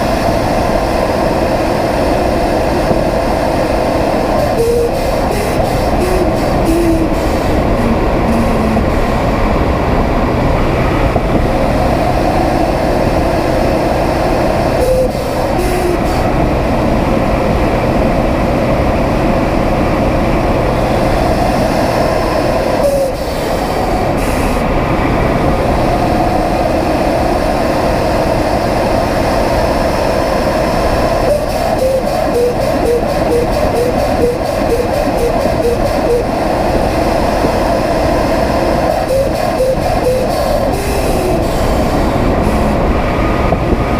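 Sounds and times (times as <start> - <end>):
car engine drone in cabin: 0.0 - 43.9
odd engine noise: 0.0 - 43.9.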